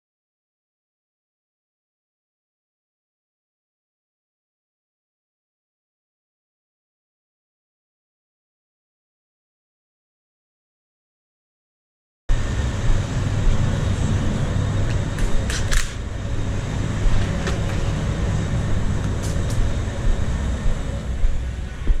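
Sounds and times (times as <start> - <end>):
low mechanical rumble: 12.3 - 22.0
sharp clicks: 15.2 - 16.0.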